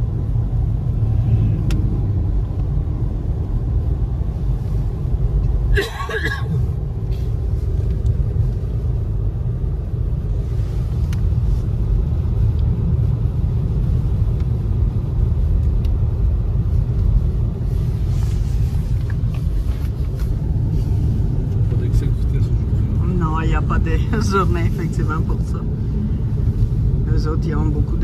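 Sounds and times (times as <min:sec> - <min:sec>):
car driving on snow: 0:00.0 - 0:28.0.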